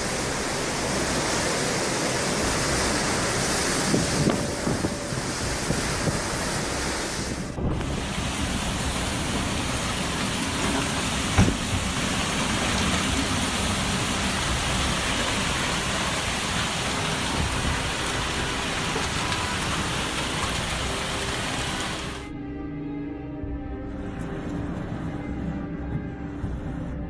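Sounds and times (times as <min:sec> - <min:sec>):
heavy rain: 0:00.0 - 0:22.3
wind: 0:00.0 - 0:27.0
sharp thump: 0:11.4 - 0:11.7.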